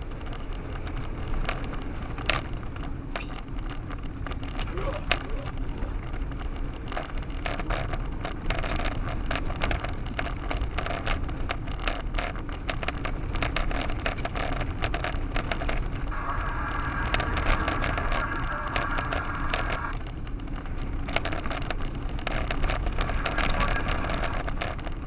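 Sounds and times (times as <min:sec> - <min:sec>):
car road and engine rumble: 0:00.0 - 0:25.0
tyres crackling and rattling: 0:00.0 - 0:25.0
steady hiss: 0:16.0 - 0:20.0.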